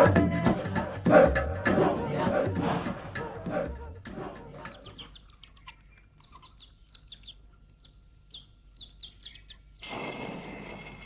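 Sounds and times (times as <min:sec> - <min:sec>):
small birds chirping: 0:04.4 - 0:09.9.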